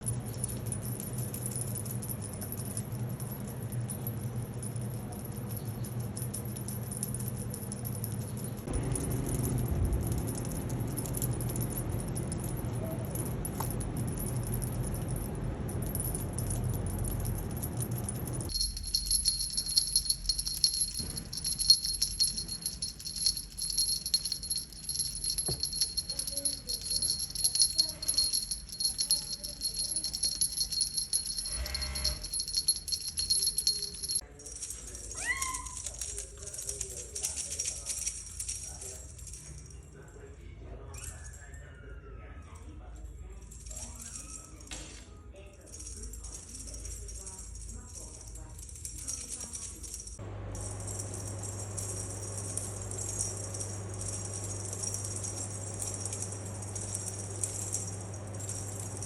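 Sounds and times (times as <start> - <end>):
jingling and rattling: 0.0 - 40.3, 43.0 - 59.0.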